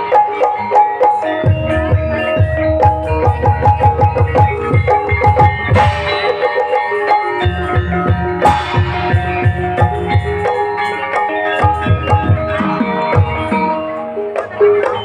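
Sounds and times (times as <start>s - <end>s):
struck metal tuned melody: 0.0s - 15.0s
fast dense drumming: 7.4s - 10.6s.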